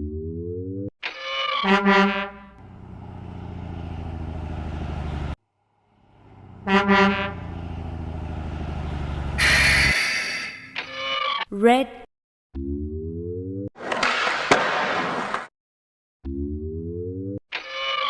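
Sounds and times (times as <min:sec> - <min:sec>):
truck horn honking: 0:01.6 - 0:02.7, 0:06.2 - 0:08.2, 0:09.1 - 0:10.7
low engine rumble: 0:02.5 - 0:09.9
short rising tone: 0:09.3 - 0:10.8.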